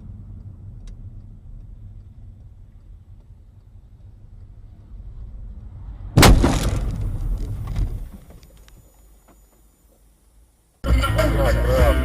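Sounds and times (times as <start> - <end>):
road rumble: 0.0 - 12.0
car crash bang: 6.2 - 8.4
debris clattering: 6.2 - 8.5.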